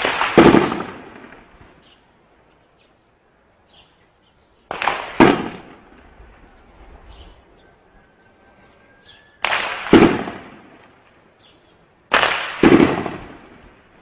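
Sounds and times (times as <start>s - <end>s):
gunshot reports ringing: 0.0s - 1.5s, 4.7s - 5.9s, 9.4s - 10.8s, 12.1s - 13.7s
sharp gunshot crack: 0.0s - 1.5s, 4.7s - 5.9s, 9.4s - 10.9s, 12.1s - 13.7s.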